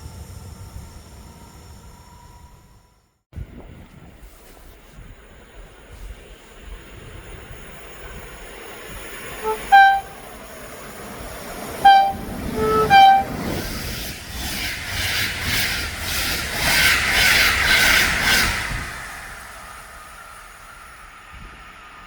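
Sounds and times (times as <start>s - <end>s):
train passing: 5.2s - 22.0s
train horn blasts: 9.4s - 10.4s, 11.8s - 13.6s.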